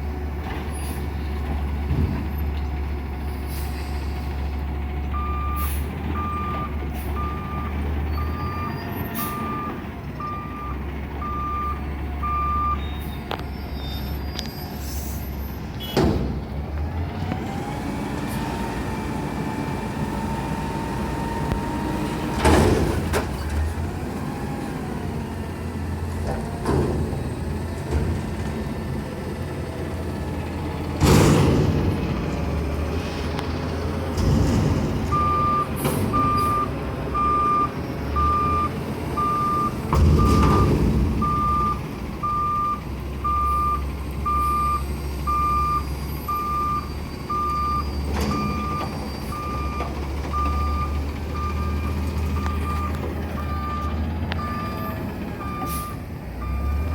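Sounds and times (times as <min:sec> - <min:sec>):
garbage truck diesel engine running: 0:00.0 - 0:56.9
reversing alarm beeping: 0:05.1 - 0:16.0, 0:35.1 - 0:56.9.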